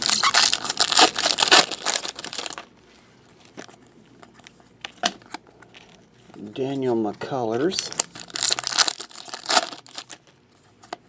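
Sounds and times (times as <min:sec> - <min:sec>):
foil wrapper crinkling and tearing: 0:00.0 - 0:02.7, 0:07.8 - 0:10.3.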